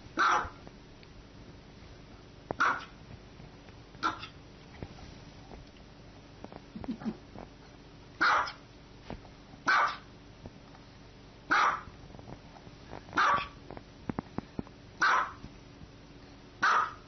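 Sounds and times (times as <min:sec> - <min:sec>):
dog barking loudly: 0:00.2 - 0:00.6, 0:02.6 - 0:03.0, 0:04.0 - 0:04.3, 0:08.2 - 0:08.6, 0:09.7 - 0:10.1, 0:11.5 - 0:11.9, 0:13.2 - 0:13.6, 0:15.0 - 0:15.4, 0:16.6 - 0:17.0.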